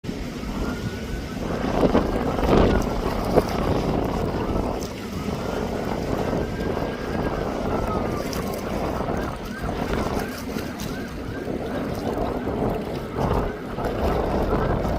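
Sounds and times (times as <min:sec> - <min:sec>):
jet engine rumble: 0:00.0 - 0:10.6
wind buffeting microphone: 0:00.0 - 0:14.9.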